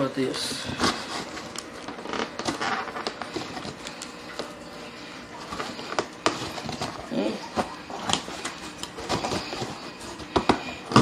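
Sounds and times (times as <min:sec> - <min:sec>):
cardboard box rustling: 0:00.7 - 0:03.8, 0:05.4 - 0:11.0.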